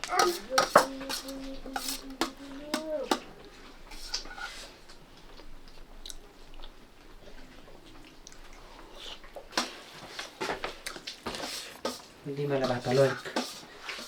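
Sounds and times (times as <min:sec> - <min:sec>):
person chewing food: 0:04.9 - 0:11.8.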